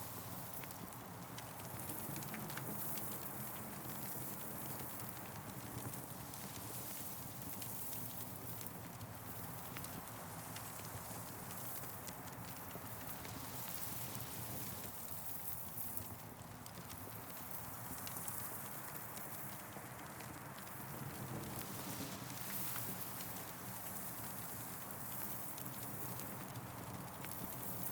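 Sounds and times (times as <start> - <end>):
campfire crackling: 8.3 - 27.9.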